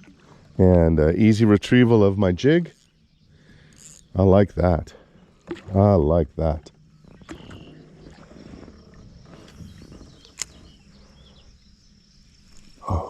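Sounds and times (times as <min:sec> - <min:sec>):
high insect buzz: 0:07.2 - 0:13.0.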